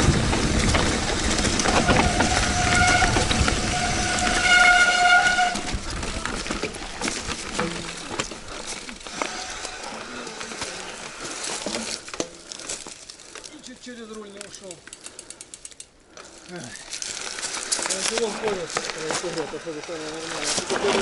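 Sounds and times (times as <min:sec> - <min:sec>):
rushing and rattling from riding: 0:00.0 - 0:12.0, 0:14.5 - 0:21.0
bike rattling over rough ground: 0:00.0 - 0:21.0
bicycle disc brakes squealing: 0:01.3 - 0:06.1, 0:09.0 - 0:10.3.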